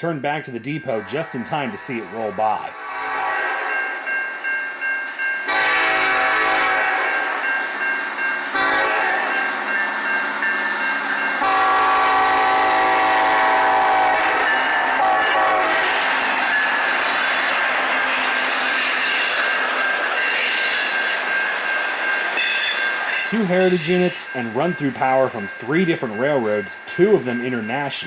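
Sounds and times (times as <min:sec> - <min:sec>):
train air horn blasts: 0:02.8 - 0:03.8, 0:05.5 - 0:07.4, 0:08.6 - 0:09.3, 0:11.4 - 0:14.4, 0:15.0 - 0:16.1.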